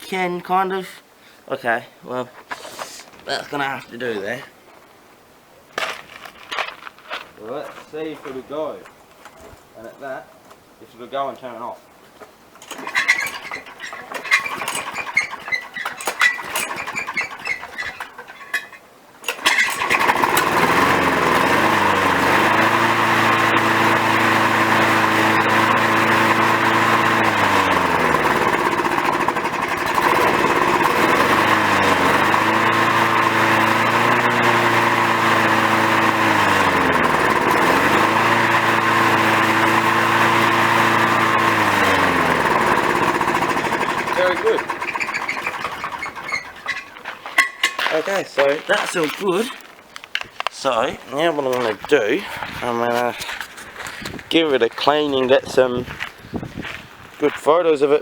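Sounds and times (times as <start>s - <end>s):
lawnmower engine running: 12.6s - 49.7s.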